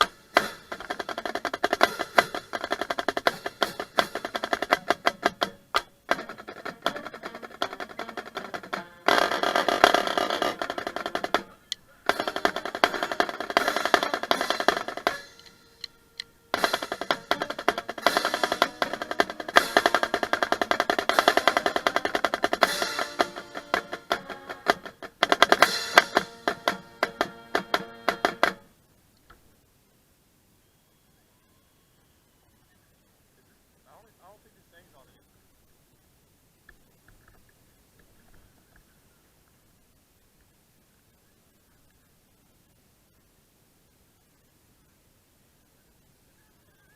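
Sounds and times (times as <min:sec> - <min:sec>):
marching drumline playing: 0:00.0 - 0:28.7.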